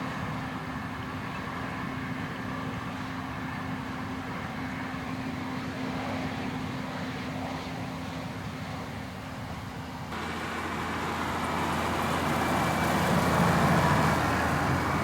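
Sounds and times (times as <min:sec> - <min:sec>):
vehicle engine running: 0:10.1 - 0:15.0.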